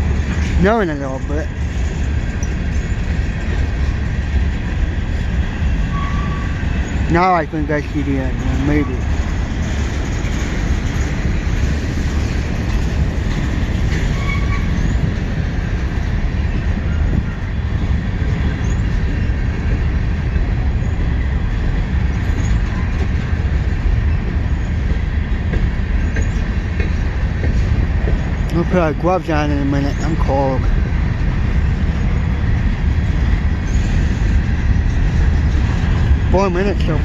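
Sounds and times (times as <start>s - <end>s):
train wheels rumbling on rails: 0.0s - 37.0s
faint wheel squeal: 5.8s - 7.0s, 14.0s - 15.0s.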